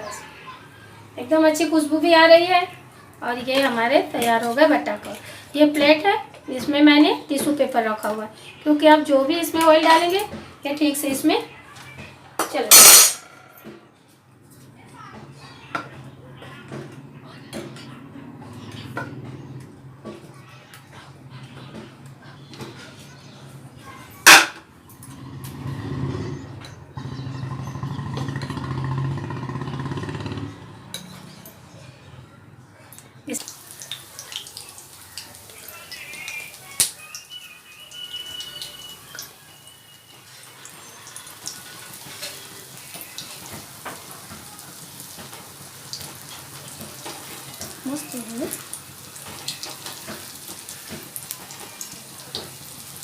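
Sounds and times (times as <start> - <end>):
food deep-frying in oil: 33.3 - 53.0
oil crackles and pops: 33.3 - 53.0.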